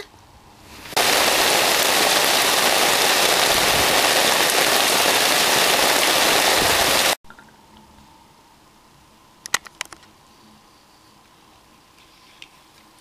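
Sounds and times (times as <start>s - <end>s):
heavy rain hiss: 0.7s - 7.2s.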